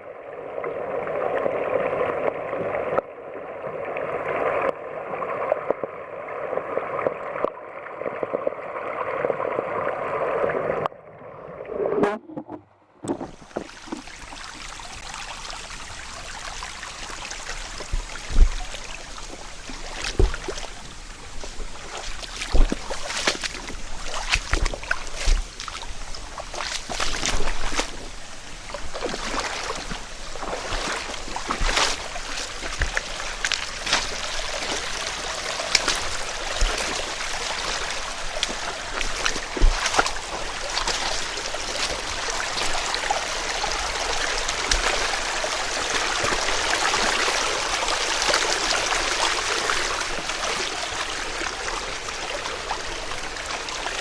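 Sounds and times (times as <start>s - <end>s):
stream babbling over rocks: 13.1s - 54.0s.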